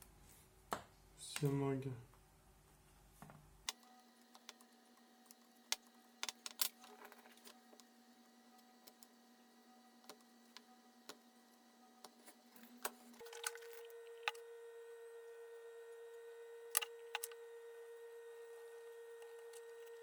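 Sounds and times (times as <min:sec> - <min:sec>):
faint electrical hum: 0:00.0 - 0:20.0.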